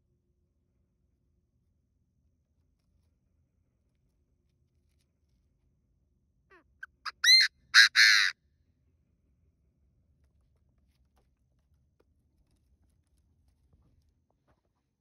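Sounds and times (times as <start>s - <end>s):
francolin calling: 6.8s - 8.3s.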